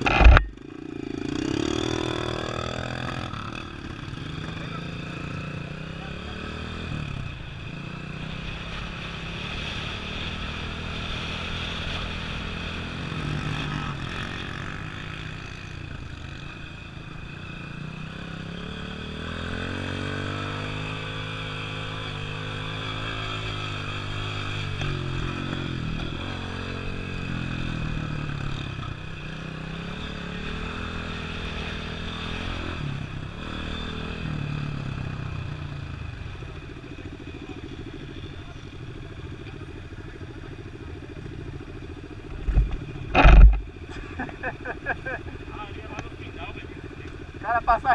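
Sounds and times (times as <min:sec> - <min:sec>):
vehicle engine revving: 0:42.2 - 0:47.9.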